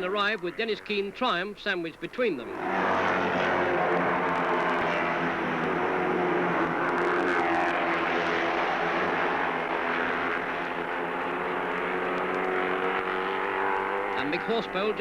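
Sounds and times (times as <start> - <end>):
racing motorcycle engines passing: 2.4 - 15.0.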